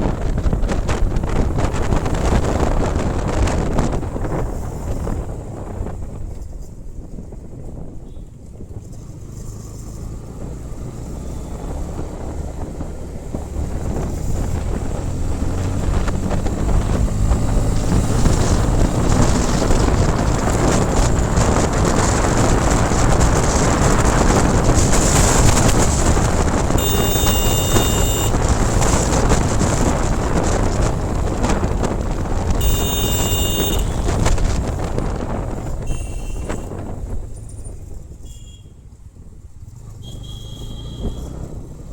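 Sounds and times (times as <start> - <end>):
wind rushing over microphone: 0.0 - 40.0
motorcycle engine: 8.0 - 41.9
held high tones: 26.8 - 28.4, 32.6 - 34.3.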